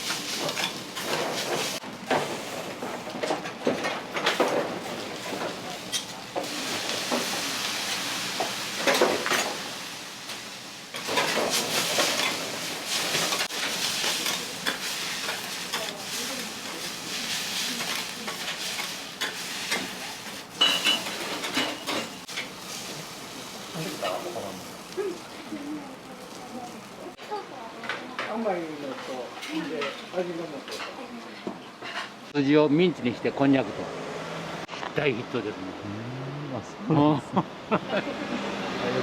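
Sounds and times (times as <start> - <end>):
food sizzling on griddle: 0.0 - 2.6, 4.2 - 32.3.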